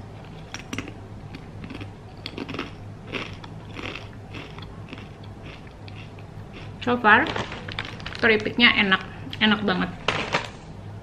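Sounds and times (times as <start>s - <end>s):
person chewing crunchy chips: 0.2s - 8.2s.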